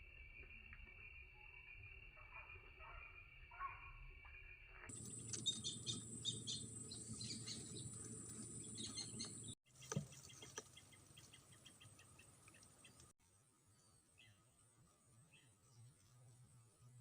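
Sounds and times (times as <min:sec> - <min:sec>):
birds chirping: 0:04.9 - 0:13.1.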